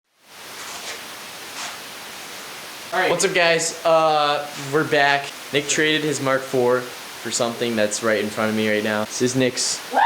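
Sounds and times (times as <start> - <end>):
background hiss: 0.1 - 10.0
soft rustles: 0.4 - 1.9.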